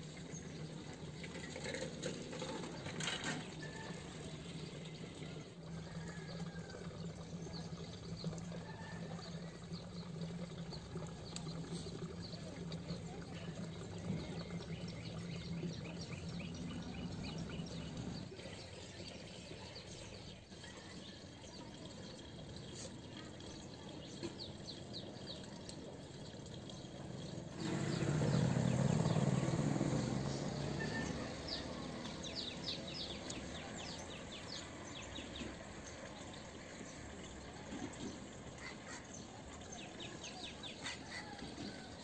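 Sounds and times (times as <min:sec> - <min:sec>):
outdoor background noise: 0:00.0 - 0:42.0
small birds chirping: 0:09.2 - 0:41.8.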